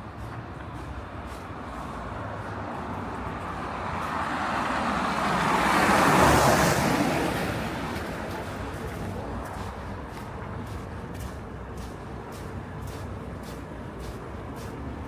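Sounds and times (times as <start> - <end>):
car driving past: 3.5 - 8.0.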